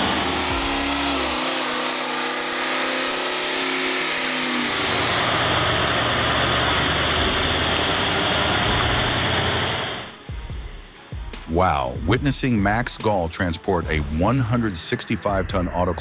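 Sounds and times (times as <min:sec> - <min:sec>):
heavy truck engine running: 0:00.0 - 0:10.8.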